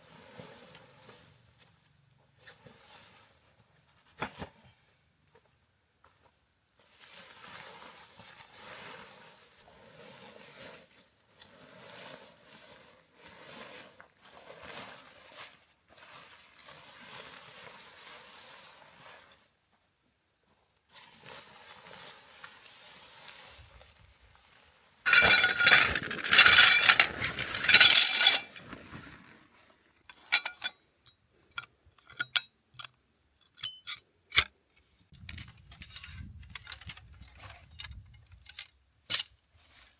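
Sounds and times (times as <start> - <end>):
metal clattering and clinking: 25.1 - 29.2, 30.1 - 32.9
gear rustling: 25.1 - 30.7.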